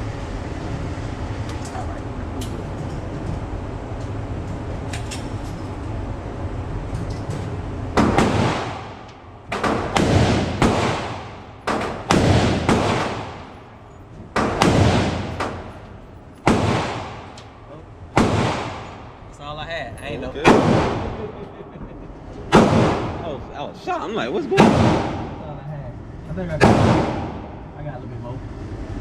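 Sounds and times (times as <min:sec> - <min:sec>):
gunshots with echo: 0:08.0 - 0:17.4, 0:18.1 - 0:19.2, 0:20.4 - 0:21.4, 0:22.5 - 0:23.4, 0:24.5 - 0:25.4, 0:26.6 - 0:27.7.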